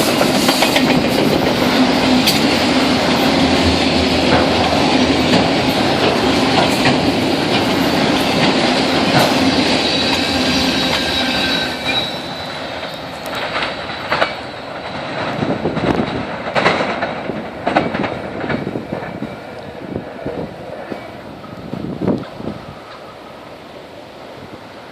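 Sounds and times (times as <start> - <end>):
train wheels clattering on rail joints: 0.0 - 23.4
high wheel squeal: 7.8 - 13.7.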